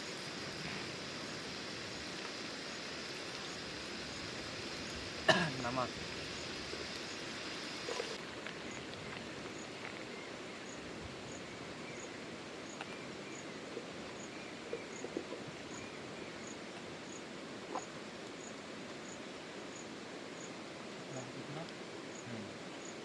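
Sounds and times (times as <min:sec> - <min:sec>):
falling water rushing: 0:00.0 - 0:09.6
high insect chirp: 0:00.0 - 0:15.0.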